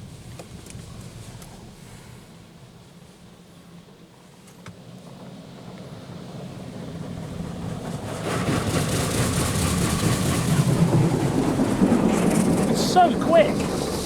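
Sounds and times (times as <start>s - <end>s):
water jets spraying car: 4.8s - 14.0s.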